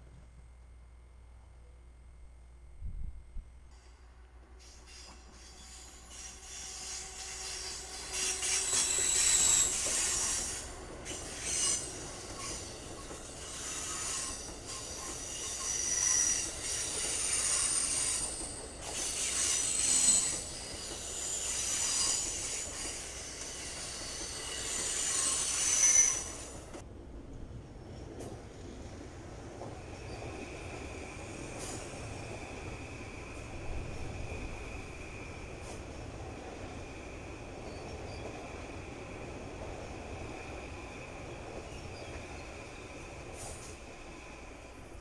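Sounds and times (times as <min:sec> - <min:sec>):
rolling rumble of train cars: 0:00.0 - 0:45.0
train wheels squealing: 0:03.7 - 0:26.8, 0:29.6 - 0:44.8.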